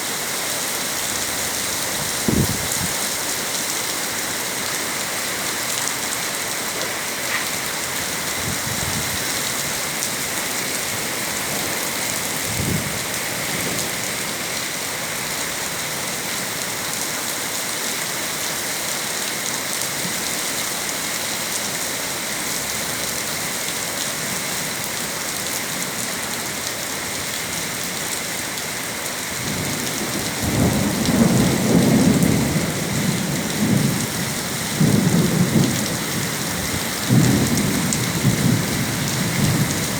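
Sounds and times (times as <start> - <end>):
rain hissing: 0.0 - 15.9, 29.5 - 39.9
thunder rumbling: 10.8 - 14.0, 29.4 - 39.9.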